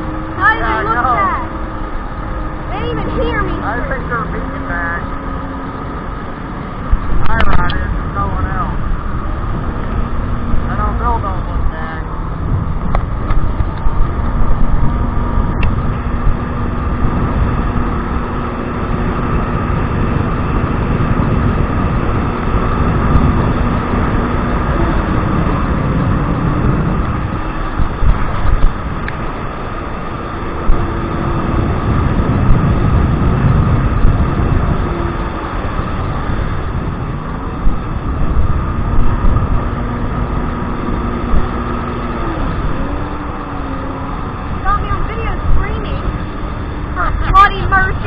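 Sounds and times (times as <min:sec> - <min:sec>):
jet ski engine running: 0:00.0 - 0:48.0
water rushing: 0:00.0 - 0:48.0
wind on microphone: 0:00.0 - 0:48.0.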